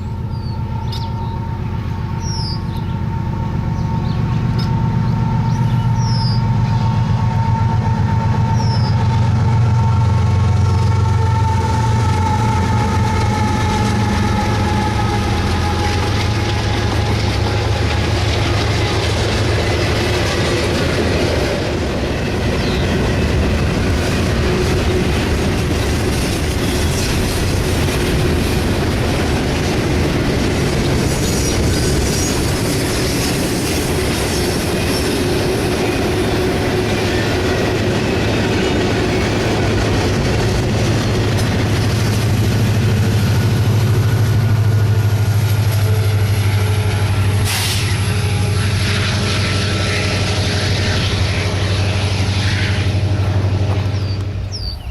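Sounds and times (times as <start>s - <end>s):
clicking train wheels: 0.0s - 54.9s
diesel locomotive drone: 0.0s - 54.9s
rail noise: 0.0s - 54.9s
high wheel squeal: 0.1s - 9.4s.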